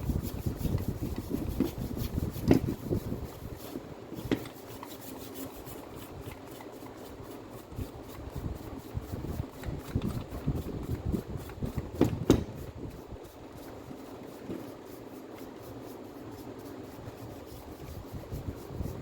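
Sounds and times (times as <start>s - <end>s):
sharp knocks: 12.0s - 12.6s.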